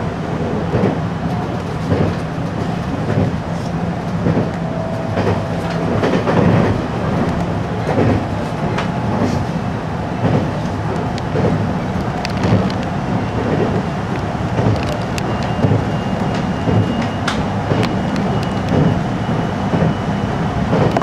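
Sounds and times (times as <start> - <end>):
train running hum: 0.0 - 21.0.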